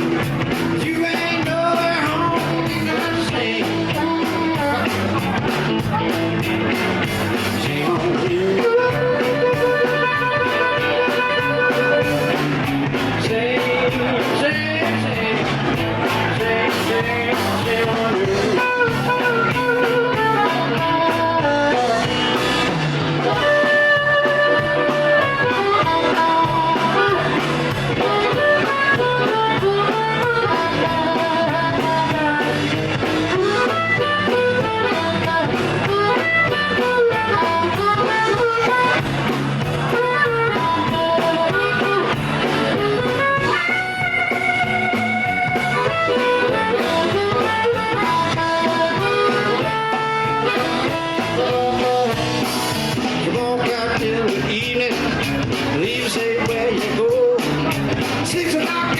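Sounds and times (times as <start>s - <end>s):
bass guitar: 0.0s - 58.9s
blues guitar lead lines: 0.0s - 58.9s
drums in a shuffle: 0.0s - 58.9s.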